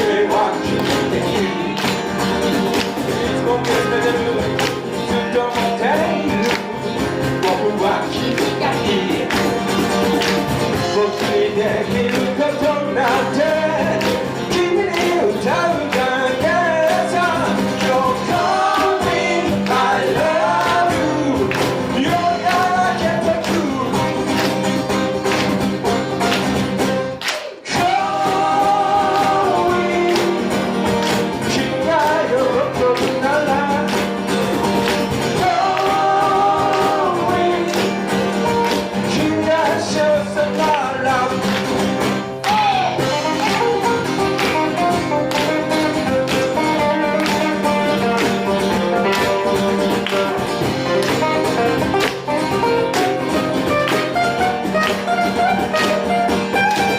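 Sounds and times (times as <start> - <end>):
lead singer singing: 0.0 - 2.2, 3.1 - 9.4, 10.8 - 24.2, 27.4 - 34.1, 35.2 - 38.2, 39.0 - 41.6
live rock band playing: 0.0 - 56.9.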